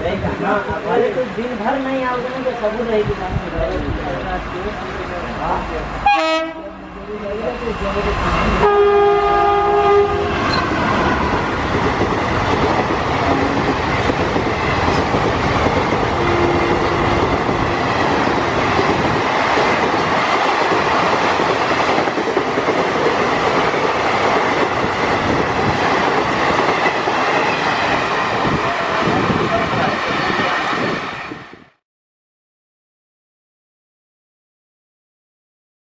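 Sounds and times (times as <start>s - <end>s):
train passing at speed: 0.0s - 31.8s
wheels clacking over rail joints: 10.4s - 28.8s.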